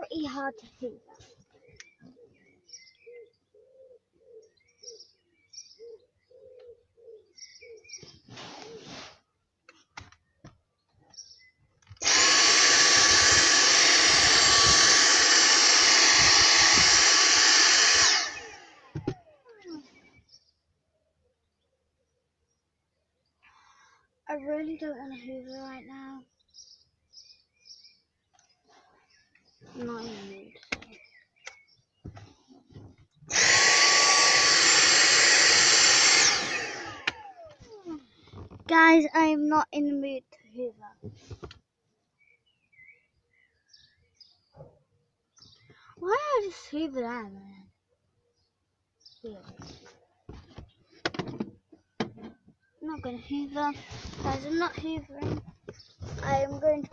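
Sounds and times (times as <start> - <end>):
vacuum cleaner running: 12.0 - 19.1, 33.3 - 37.6.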